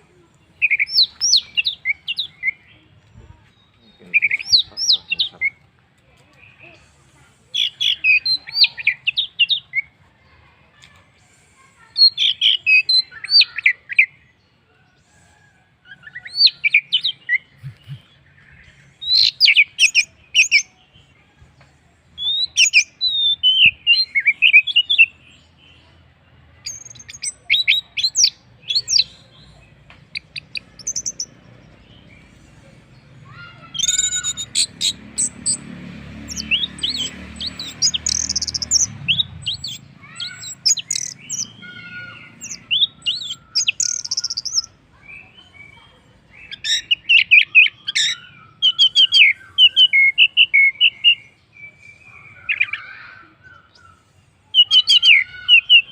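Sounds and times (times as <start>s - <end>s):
thrush singing whistled notes: 33.7s - 35.6s, 36.3s - 45.2s, 46.4s - 54.0s.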